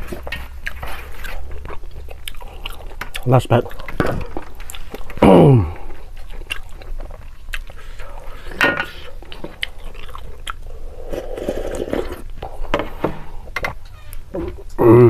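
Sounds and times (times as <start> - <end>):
chewing with mouth clicks: 0.0 - 5.2, 5.8 - 12.4.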